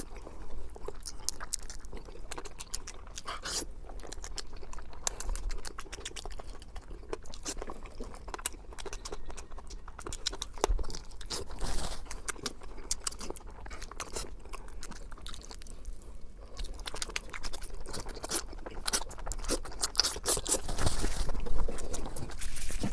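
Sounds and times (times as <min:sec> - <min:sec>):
person chewing crunchy food: 0:00.0 - 0:22.9.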